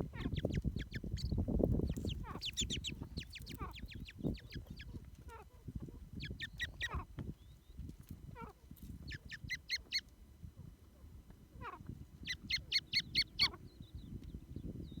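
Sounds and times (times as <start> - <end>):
francolin calling: 11.7 - 13.7.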